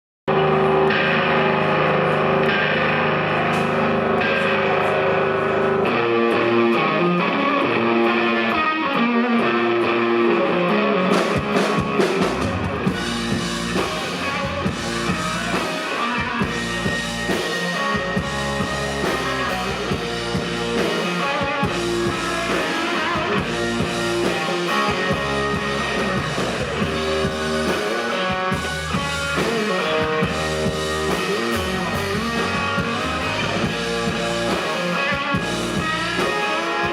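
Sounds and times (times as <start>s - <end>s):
bass line: 0.3s - 36.9s
electric guitar: 0.3s - 36.9s
drums and cymbals: 5.8s - 36.9s.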